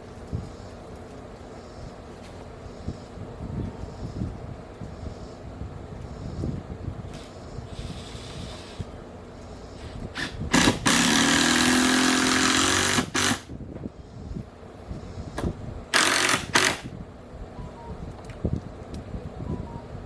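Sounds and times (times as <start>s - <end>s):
power tool bursts: 7.1s - 8.9s, 9.8s - 13.5s, 15.9s - 16.9s.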